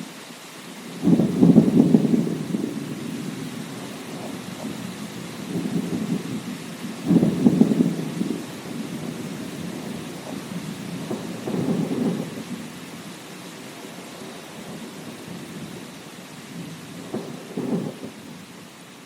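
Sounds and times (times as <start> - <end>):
steady rain: 0.0 - 19.0
sharp thunderclap: 1.0 - 6.4, 7.0 - 12.5, 16.6 - 18.2
thunder rumbling: 1.0 - 12.9, 13.8 - 18.5.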